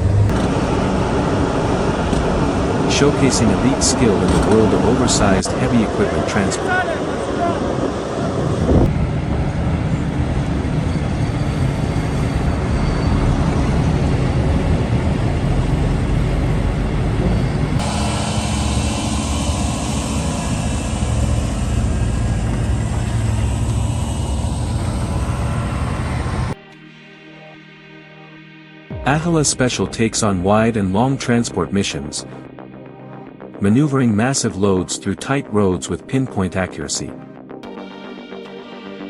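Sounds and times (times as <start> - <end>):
heavy diesel machinery rumbling: 0.0 - 26.6.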